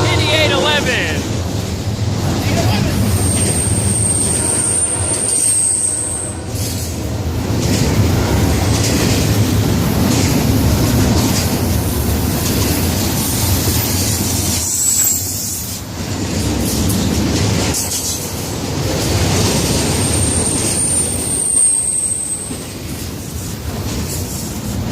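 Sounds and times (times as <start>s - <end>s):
freight train wheels rumbling: 0.0s - 24.9s
high wheel squeal: 3.0s - 6.6s, 14.5s - 15.8s, 19.9s - 22.8s.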